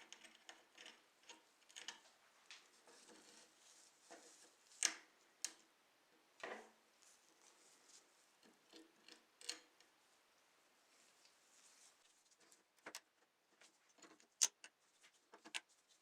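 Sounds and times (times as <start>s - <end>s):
small parts clicking and tapping: 0.0s - 3.3s, 4.7s - 5.7s, 8.4s - 9.9s, 12.4s - 13.3s, 13.9s - 15.7s.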